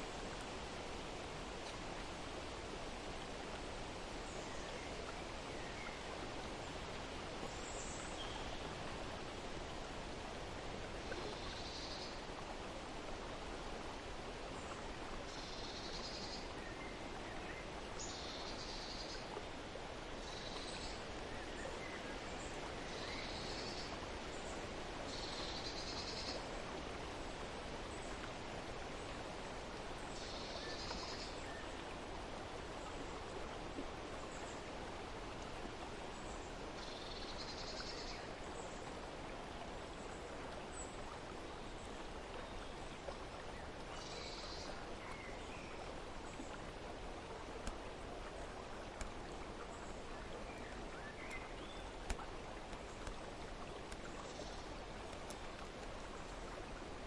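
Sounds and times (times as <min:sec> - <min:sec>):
outdoor background hiss: 0:00.0 - 0:57.0.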